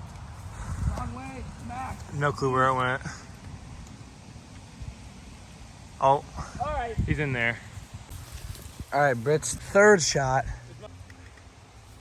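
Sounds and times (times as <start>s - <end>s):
wind rumbling on microphone: 0.0s - 10.7s
rain hiss: 0.0s - 12.0s.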